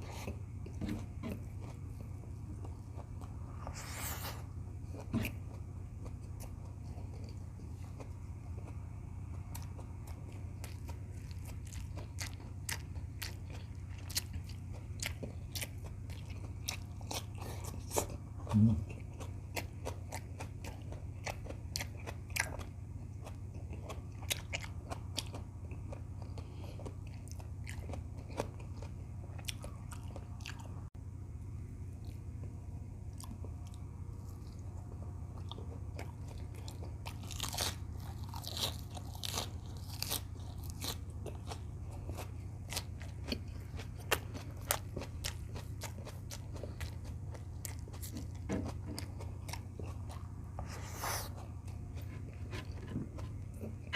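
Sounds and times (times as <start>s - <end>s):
low hum: 0.0s - 21.7s
chewing and biting food: 0.0s - 30.9s, 31.9s - 53.9s.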